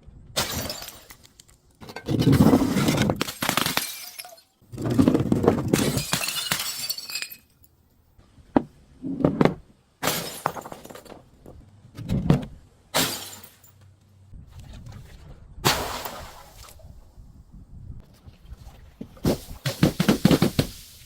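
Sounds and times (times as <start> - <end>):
glass bottles smashing: 0.4 - 1.2, 2.1 - 4.6, 5.7 - 7.6, 10.0 - 11.1, 13.0 - 13.7.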